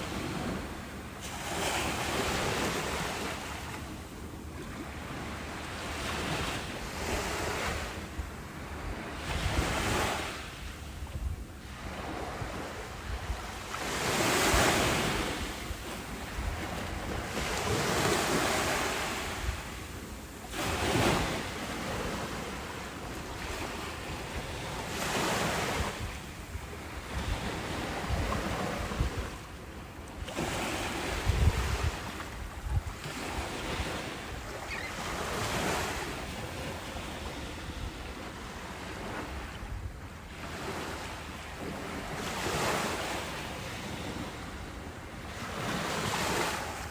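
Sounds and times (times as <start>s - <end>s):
ocean waves breaking: 0.0s - 46.9s.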